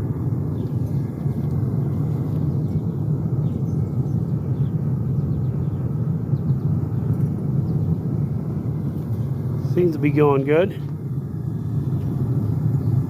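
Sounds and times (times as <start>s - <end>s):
furnace burner low rumble: 0.0s - 13.0s.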